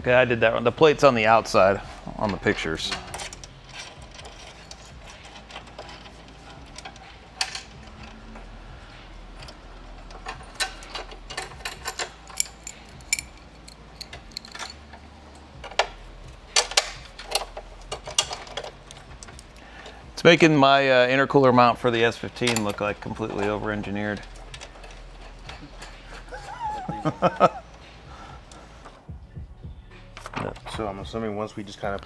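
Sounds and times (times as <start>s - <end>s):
metallic clicks of bolts and tools: 1.3s - 29.0s.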